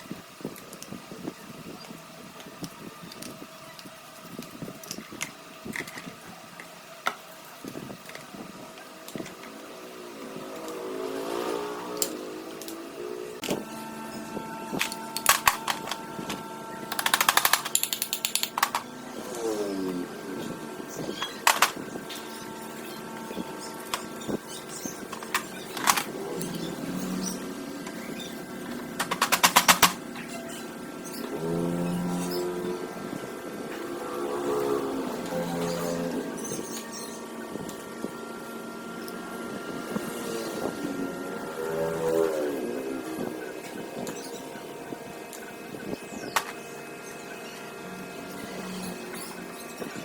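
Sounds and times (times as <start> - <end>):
mechanical whine: 0.0 - 50.0
steady hum: 0.0 - 50.0
clicks and knocks on metal parts: 16.9 - 18.8, 29.0 - 30.0.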